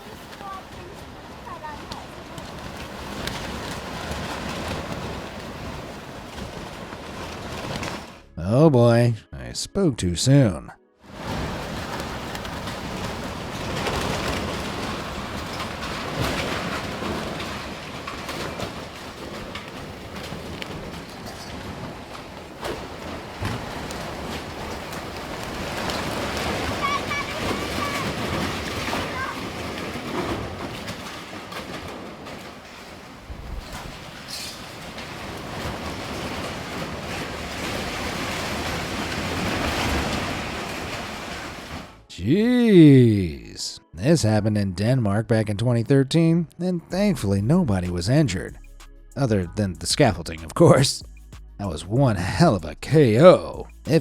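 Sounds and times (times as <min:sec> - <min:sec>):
knocks and rattles: 0:00.0 - 0:08.2, 0:11.2 - 0:42.1.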